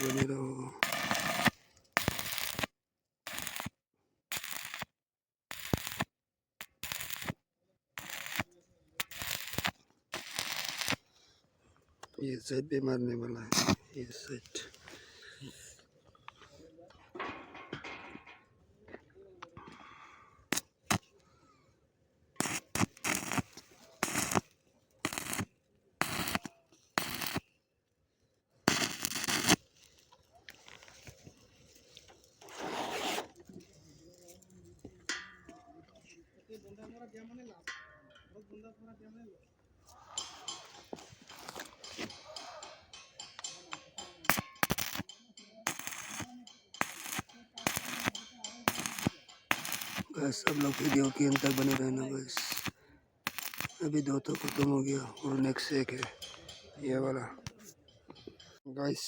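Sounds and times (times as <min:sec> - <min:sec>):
electric arc welding crackle: 0:00.0 - 0:02.7, 0:03.3 - 0:03.7, 0:04.3 - 0:04.9, 0:05.5 - 0:07.4, 0:08.0 - 0:11.0, 0:22.4 - 0:27.4, 0:28.7 - 0:29.6, 0:44.3 - 0:56.1.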